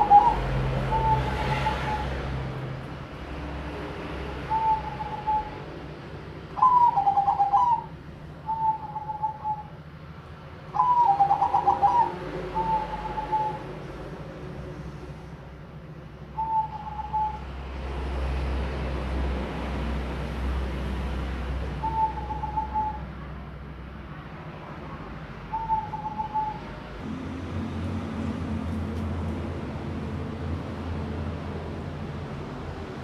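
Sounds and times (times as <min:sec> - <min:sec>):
dove cooing: 0:00.0 - 0:02.1, 0:04.5 - 0:05.6, 0:06.6 - 0:09.8, 0:10.7 - 0:13.7, 0:21.8 - 0:23.1, 0:25.5 - 0:26.7.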